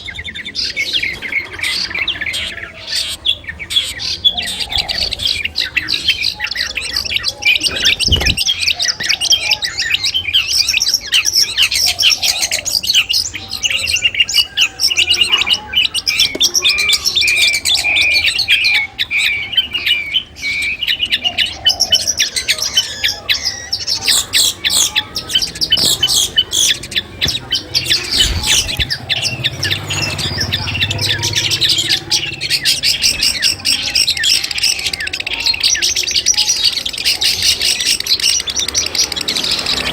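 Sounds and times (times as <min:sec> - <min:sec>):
bird singing chirps and trills: 0:00.0 - 0:39.9
bird repeated notes: 0:24.0 - 0:34.8.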